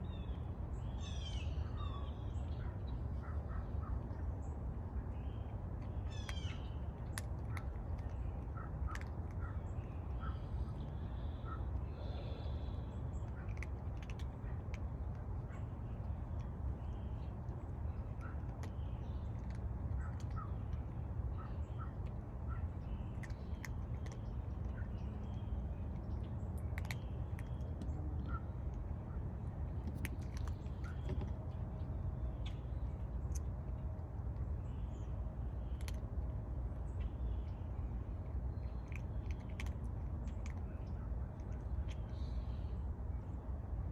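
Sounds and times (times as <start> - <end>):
steady low rumble: 0.0 - 43.9
cats crunching dry food: 6.8 - 34.6, 35.5 - 42.3.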